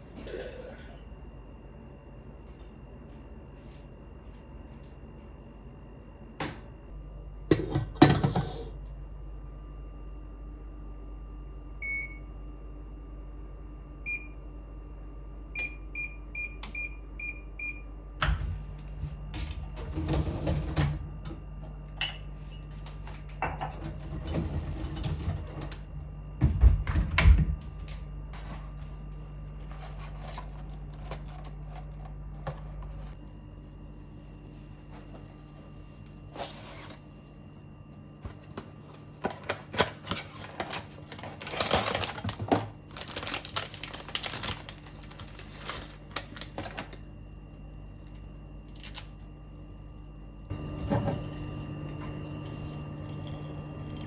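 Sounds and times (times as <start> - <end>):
kitchen appliance humming: 5.4 - 54.0
clattering and knocking of items: 7.5 - 8.8, 50.5 - 52.4.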